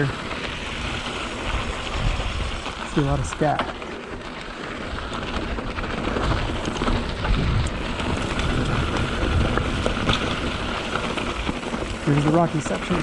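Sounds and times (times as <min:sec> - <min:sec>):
bike tyres crunching on dirt: 0:00.0 - 0:13.0
wind on microphone: 0:00.8 - 0:03.4, 0:06.0 - 0:11.2.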